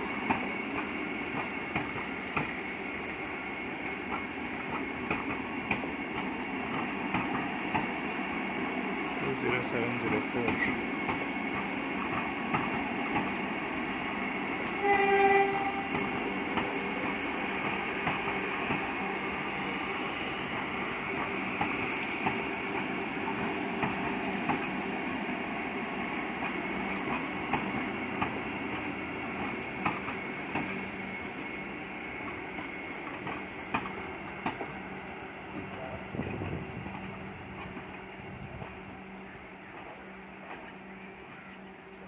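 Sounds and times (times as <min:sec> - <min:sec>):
train passing at speed: 0:00.0 - 0:42.0
train horn blast: 0:14.7 - 0:16.1.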